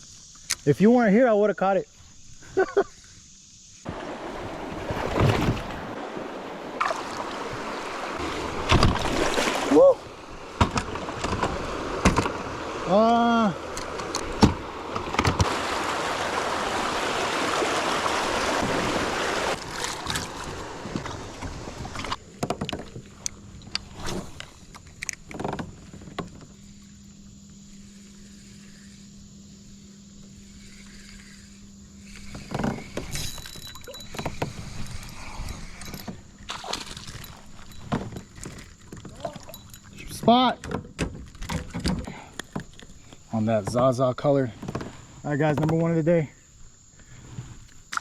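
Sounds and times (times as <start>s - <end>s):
river rushing: 3.9s - 10.4s, 14.7s - 20.9s.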